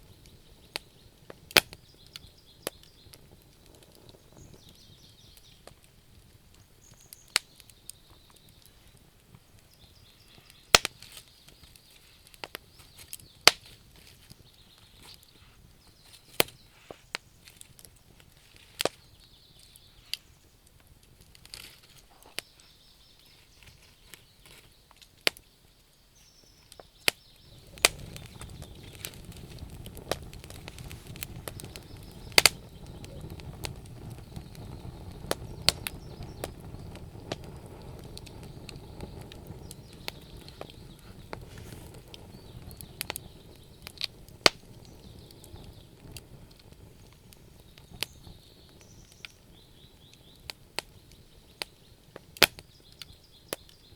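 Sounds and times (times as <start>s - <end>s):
wood fire crackling and popping: 0.0s - 53.9s
low rushing: 27.5s - 42.7s.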